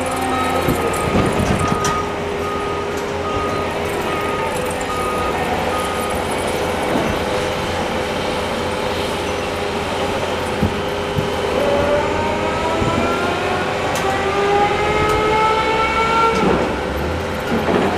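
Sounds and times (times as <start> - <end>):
reversing alarm beep: 0.0 - 7.1
heavy construction machinery running: 0.0 - 17.9
machine whine rising in pitch: 9.2 - 16.7.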